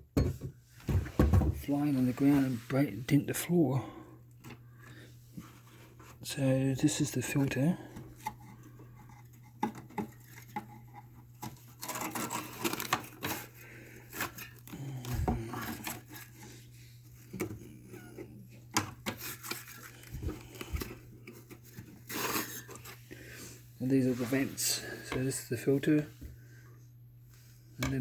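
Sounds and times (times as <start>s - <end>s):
steady low hum: 13.2s - 28.0s.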